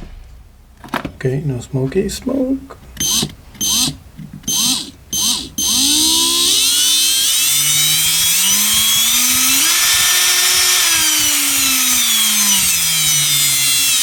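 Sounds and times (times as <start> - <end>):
cordless drill motor running: 3.0 - 14.0.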